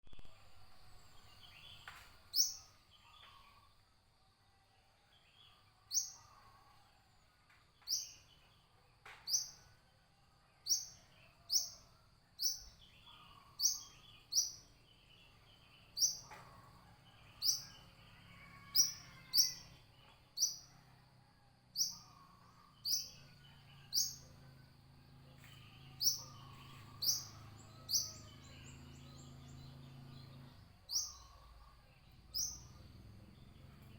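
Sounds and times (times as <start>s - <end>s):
bird sharp rising chirps: 25.6s - 33.9s.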